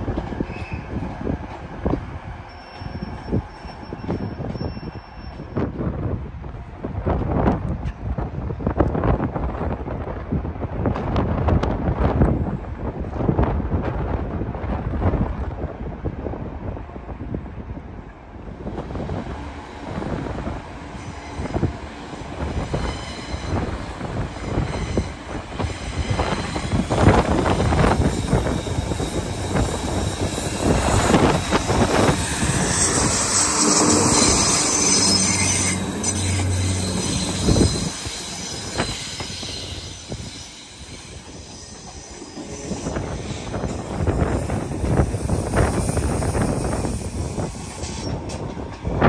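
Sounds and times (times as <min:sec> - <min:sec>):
train wheels squealing: 0:00.4 - 0:01.0, 0:02.4 - 0:05.7, 0:22.4 - 0:48.7.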